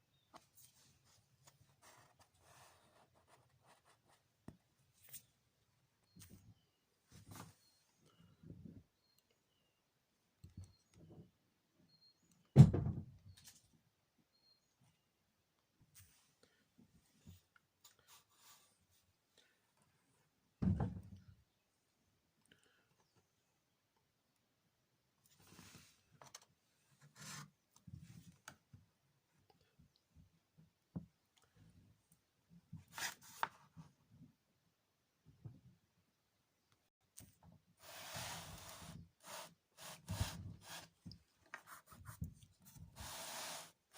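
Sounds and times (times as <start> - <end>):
faint rubbing and scraping: 37.8 - 43.9.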